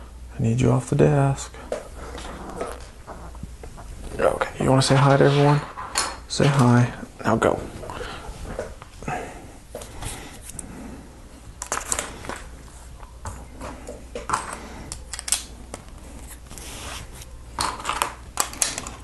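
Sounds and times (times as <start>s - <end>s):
plastic bricks clicking: 17.6s - 19.0s.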